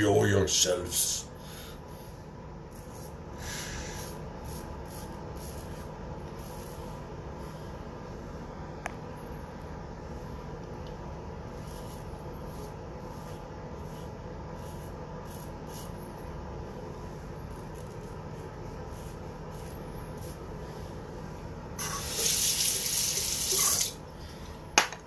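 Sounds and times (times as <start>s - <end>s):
steady low hum: 0.0s - 25.0s
water tap running: 21.8s - 24.0s.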